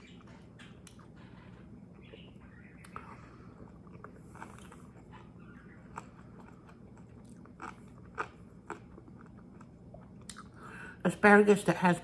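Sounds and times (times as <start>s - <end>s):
wet chewing and mouth clicks: 2.0s - 10.6s.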